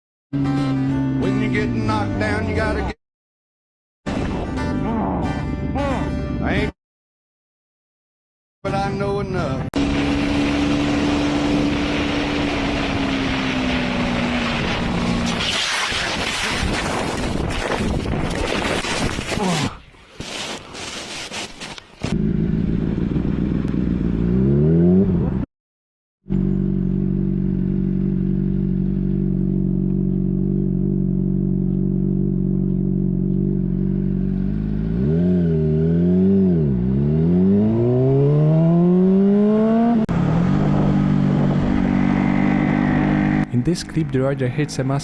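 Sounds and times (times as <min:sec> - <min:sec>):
motorcycle engine revving: 0:09.8 - 0:15.4, 0:22.0 - 0:25.5, 0:26.2 - 0:44.0.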